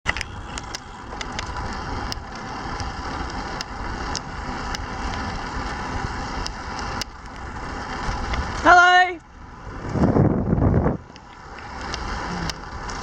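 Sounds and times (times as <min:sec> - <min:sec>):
bicycle tyre rumble: 0:00.1 - 0:13.0
wind over microphone: 0:09.4 - 0:11.2.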